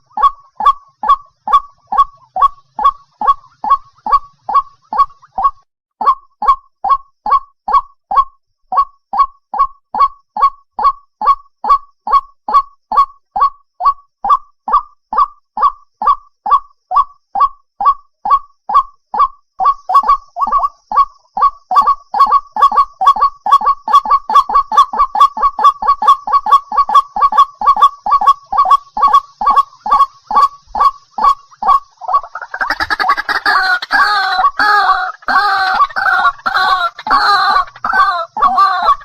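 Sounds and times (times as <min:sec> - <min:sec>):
bird honking call: 0:32.1 - 0:39.0.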